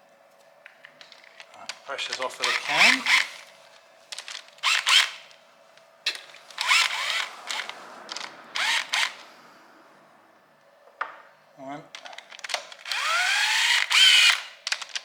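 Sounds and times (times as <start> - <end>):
cordless power tool spinning up: 2.1 - 3.6, 4.2 - 5.4, 6.1 - 9.6, 12.2 - 15.0.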